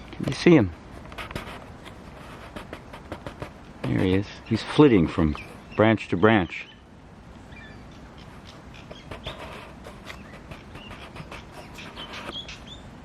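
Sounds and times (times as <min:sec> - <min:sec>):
bird calling with clicks and chirps: 0:07.5 - 0:12.9.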